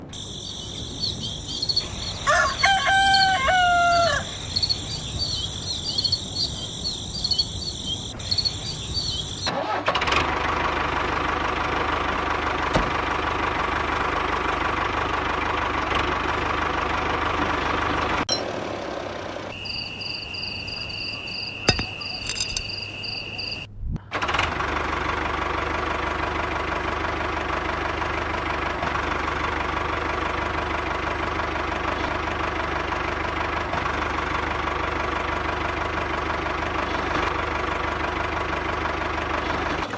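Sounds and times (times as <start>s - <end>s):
rooster crowing: 1.0s - 5.4s
steady high tones: 19.6s - 23.7s.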